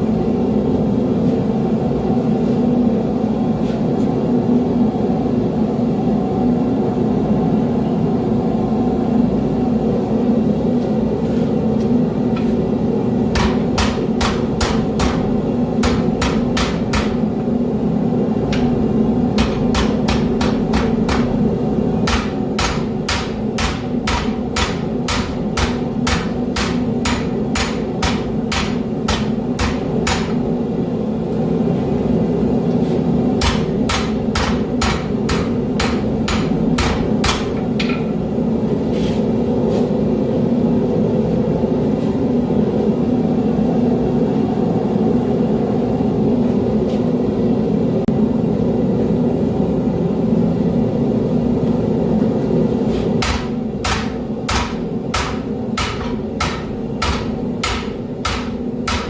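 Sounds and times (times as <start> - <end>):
hammer striking steel on anvil: 13.3 - 17.4, 18.5 - 30.6, 33.4 - 38.2, 53.2 - 59.0.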